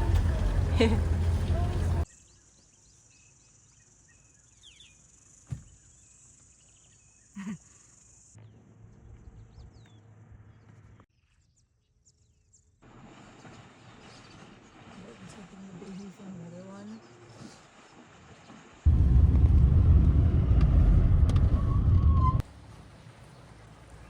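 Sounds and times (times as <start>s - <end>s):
birds chirping: 0.0s - 8.3s.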